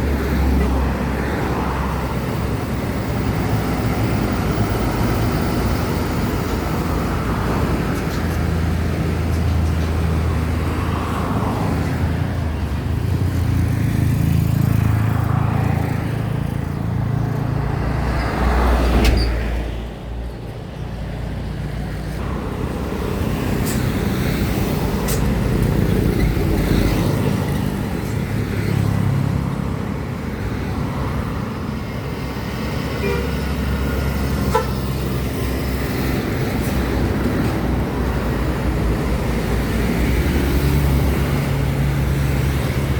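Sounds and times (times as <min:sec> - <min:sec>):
diesel trucks droning: 0:00.0 - 0:42.9
vehicle horn toot: 0:33.0 - 0:33.4.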